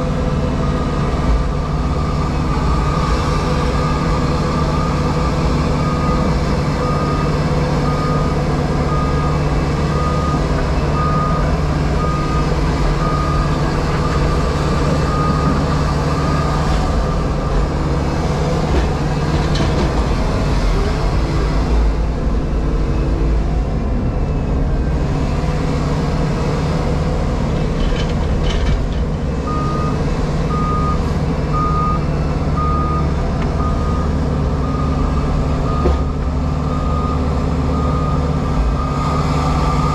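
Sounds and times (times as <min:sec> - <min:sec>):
diesel engine and hydraulics running: 0:00.0 - 0:39.9
reversing alarm beeping: 0:00.6 - 0:17.4, 0:29.5 - 0:39.9.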